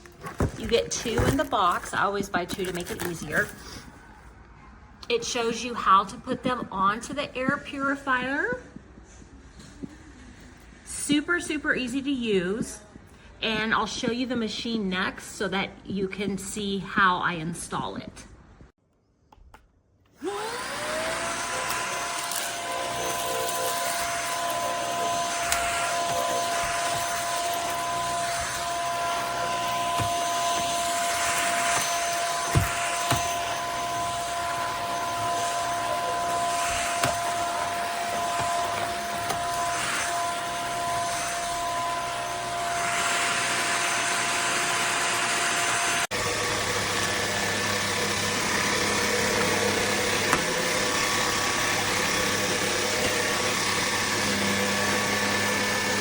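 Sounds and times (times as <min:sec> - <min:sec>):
electric fan motor whirring: 0:20.2 - 0:56.0.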